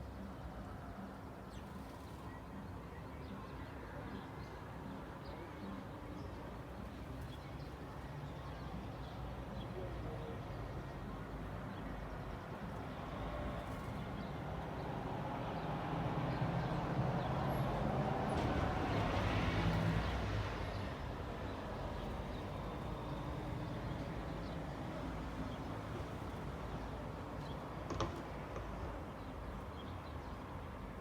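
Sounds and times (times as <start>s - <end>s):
background traffic hum: 0.0s - 31.0s.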